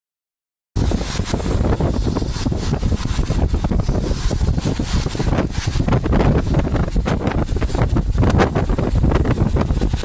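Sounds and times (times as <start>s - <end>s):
rain crackling: 0.8s - 10.0s
wind buffeting microphone: 0.8s - 10.0s.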